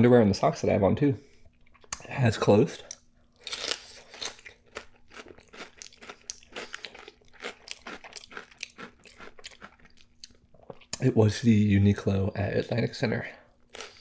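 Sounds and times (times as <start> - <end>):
person chewing crunchy snacks: 2.9 - 11.0, 13.7 - 14.0.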